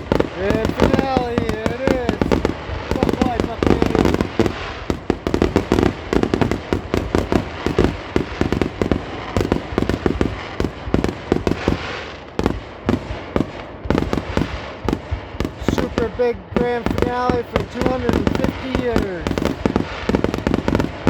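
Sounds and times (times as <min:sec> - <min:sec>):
fireworks bursting: 0:00.0 - 0:21.0
hissing crackle: 0:00.0 - 0:21.0.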